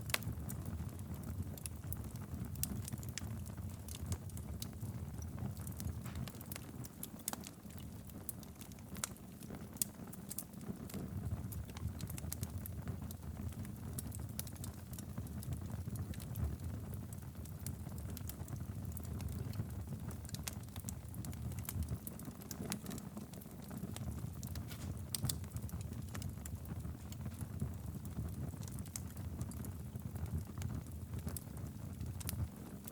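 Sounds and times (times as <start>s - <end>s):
fire crackling and popping: 0.0s - 32.9s
fire rumbling: 0.0s - 32.9s.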